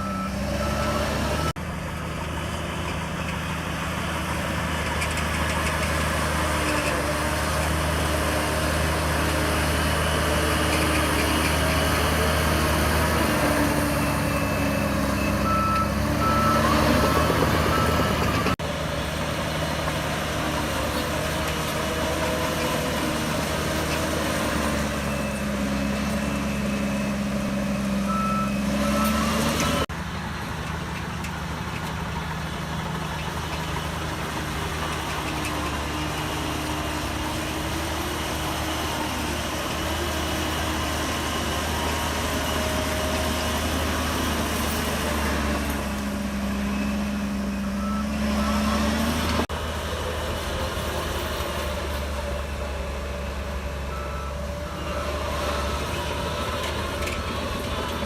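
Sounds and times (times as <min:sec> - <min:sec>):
reversing alarm beeping: 0:00.0 - 0:01.6, 0:12.1 - 0:18.6, 0:23.8 - 0:29.9, 0:46.2 - 0:49.4, 0:53.6 - 0:58.0
bulldozer diesel engine under load: 0:00.0 - 0:58.0.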